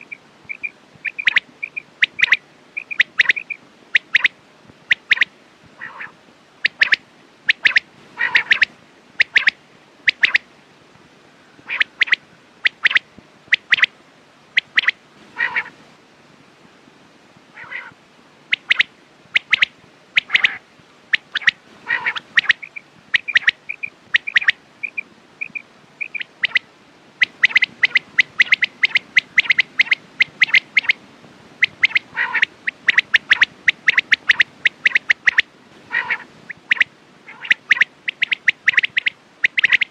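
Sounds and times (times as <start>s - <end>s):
whistled bird notes: 0.0s - 4.3s, 27.2s - 31.0s, 36.7s - 39.9s
quails calling: 0.0s - 10.5s, 11.6s - 13.9s, 14.6s - 15.8s, 17.6s - 31.0s, 31.6s - 39.9s.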